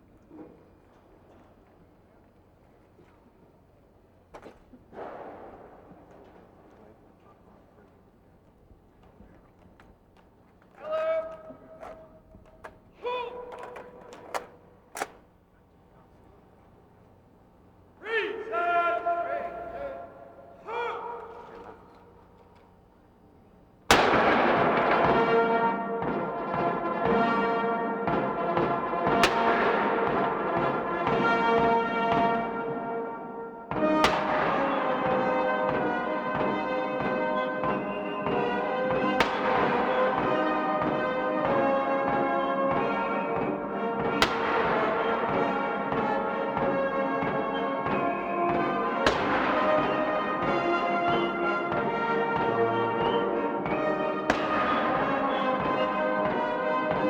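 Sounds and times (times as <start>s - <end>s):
military band playing: 13.2s - 15.2s, 23.9s - 57.0s
sharp crack: 23.9s - 26.3s, 29.2s - 30.5s, 33.7s - 35.8s, 38.9s - 41.2s, 44.0s - 57.0s.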